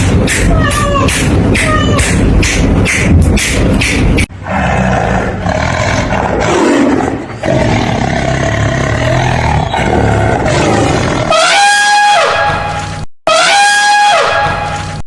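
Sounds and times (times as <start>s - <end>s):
deep rough animal calls: 0.0s - 11.6s.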